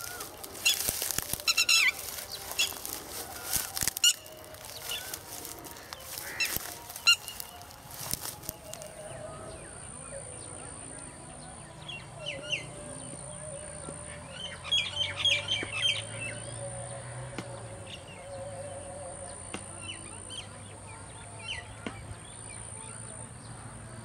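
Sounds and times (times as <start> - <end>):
birds chirping: 0.0 - 23.8.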